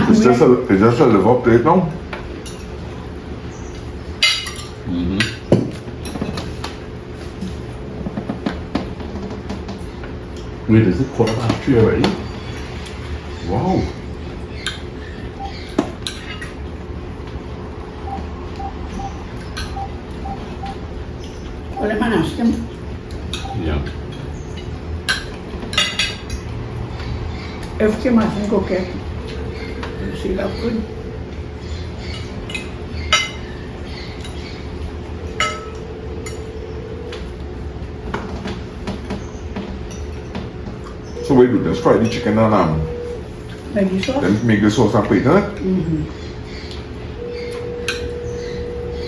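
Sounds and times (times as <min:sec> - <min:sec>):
steady low hum: 0:00.0 - 0:49.0
cutlery and dishes clinking: 0:04.2 - 0:06.6
cutlery clinking against dishes: 0:04.2 - 0:06.7, 0:23.3 - 0:26.5, 0:32.1 - 0:33.6, 0:35.3 - 0:36.6
faint high peeps: 0:18.0 - 0:20.8, 0:41.1 - 0:43.2, 0:47.2 - 0:49.0.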